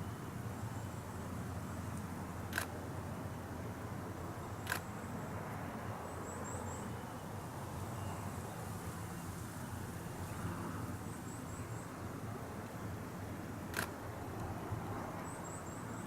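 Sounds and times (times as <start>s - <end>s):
outdoor background noise: 0.0s - 16.0s
camera shutter clicks: 2.5s - 2.7s, 4.6s - 4.9s, 13.7s - 14.0s.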